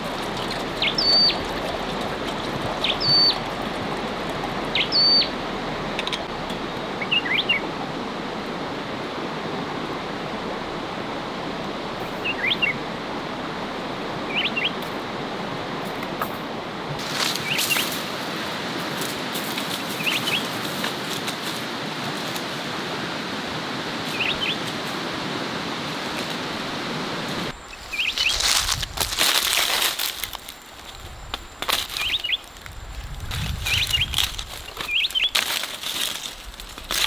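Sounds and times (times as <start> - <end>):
small bird chirping: 4.7 - 5.3, 27.6 - 28.5, 31.9 - 32.5, 33.6 - 35.4
rustling and crinkling handling: 27.8 - 37.0.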